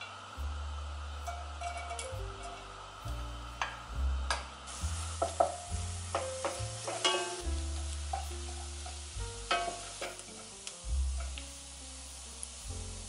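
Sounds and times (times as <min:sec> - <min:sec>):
background music: 0:00.0 - 0:13.0
ginger sizzling in oil: 0:00.0 - 0:13.0
wooden spoon stirring: 0:05.0 - 0:10.6.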